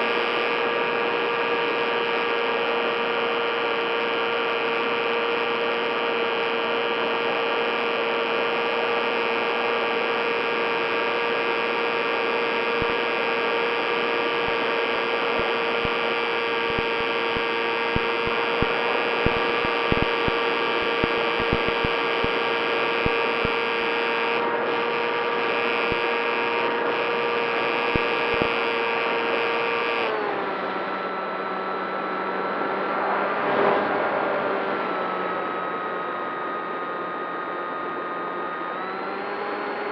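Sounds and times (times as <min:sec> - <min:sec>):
model plane motor whine: 0:00.0 - 0:39.9
clicks: 0:16.6 - 0:20.4, 0:21.0 - 0:22.4.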